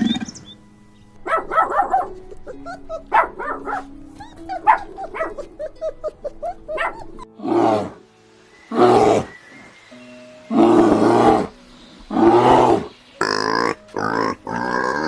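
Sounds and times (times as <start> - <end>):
background music: 0.0 - 15.0
dog yips: 1.3 - 7.3.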